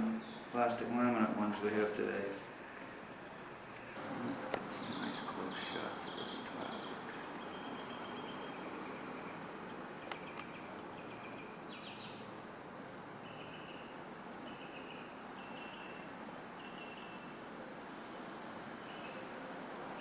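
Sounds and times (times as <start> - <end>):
bird chirping: 0.0 - 0.9, 3.6 - 12.3, 13.2 - 17.4, 18.0 - 20.0
faint steady hiss: 0.0 - 20.0.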